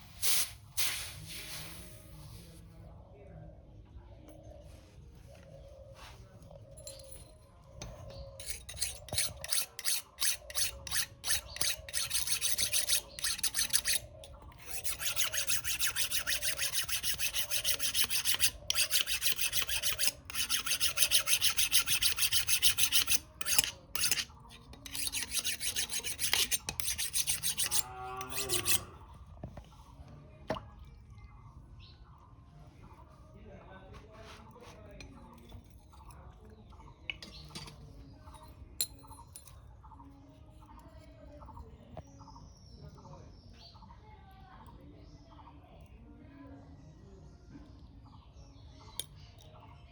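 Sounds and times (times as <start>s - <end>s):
abrasive rasping on metal: 7.8s - 29.0s.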